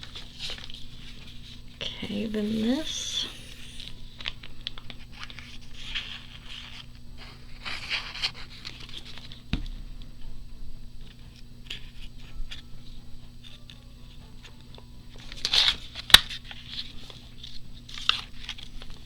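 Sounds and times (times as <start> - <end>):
faint steady hum: 0.0 - 19.0
paper rustling and crinkling: 4.2 - 9.4, 15.2 - 19.0.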